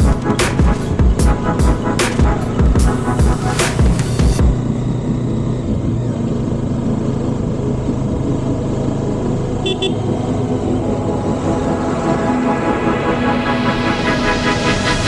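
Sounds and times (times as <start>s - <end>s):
vehicle engine running: 0.0s - 11.1s
double horn beep: 9.6s - 10.0s.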